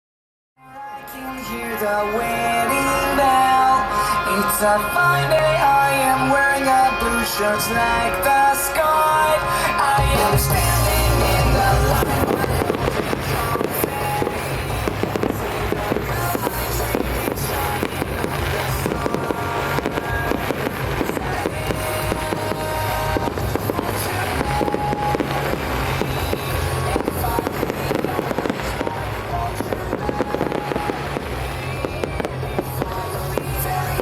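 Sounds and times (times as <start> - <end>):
music playing: 0.6 - 34.0
fireworks bangs and crackles: 9.5 - 34.0.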